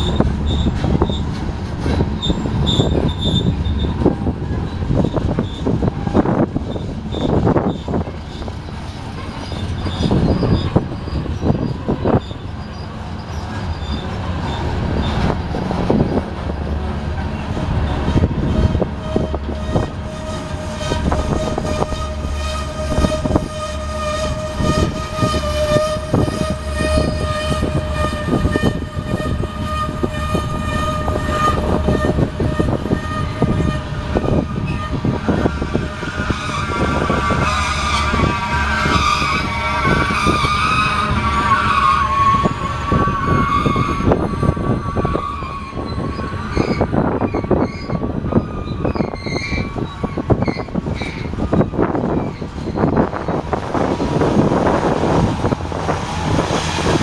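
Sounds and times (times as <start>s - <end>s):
freight train rumbling past: 0.0s - 57.0s
wheel flanges squealing: 0.0s - 57.0s.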